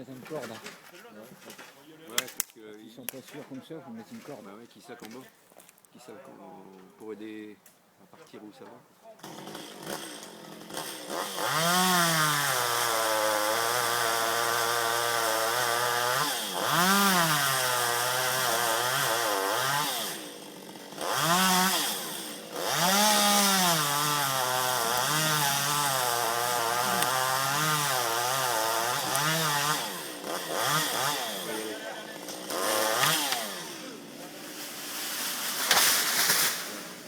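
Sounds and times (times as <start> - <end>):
chainsaw cutting into tree: 9.2 - 37.0.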